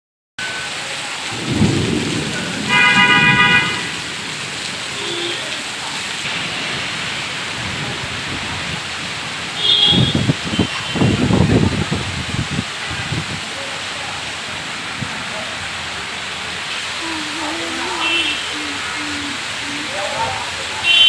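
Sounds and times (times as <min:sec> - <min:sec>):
heavy rain: 0:00.4 - 0:21.0
loud horn: 0:02.6 - 0:04.0, 0:05.0 - 0:05.6, 0:09.6 - 0:11.3, 0:17.2 - 0:20.0.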